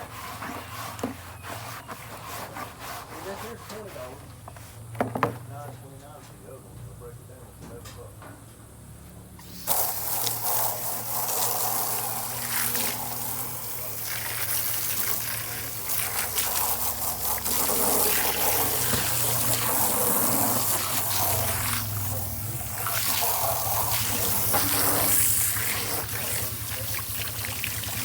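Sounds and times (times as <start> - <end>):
water running and splashing: 9.4 - 28.0.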